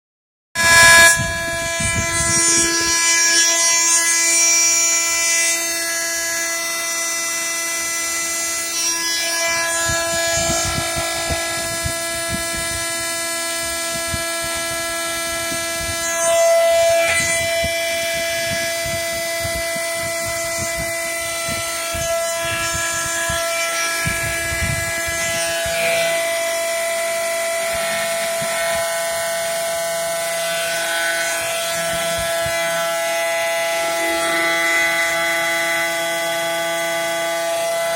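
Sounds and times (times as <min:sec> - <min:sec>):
milling machine cutting steel: 0:00.6 - 0:37.9.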